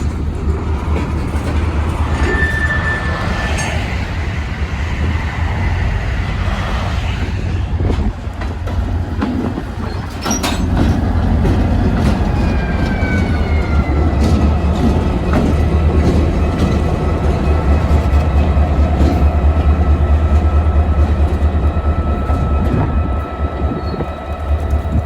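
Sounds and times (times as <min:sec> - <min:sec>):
train rumbling past: 0:00.0 - 0:25.0
train wheel clicks: 0:07.8 - 0:25.0.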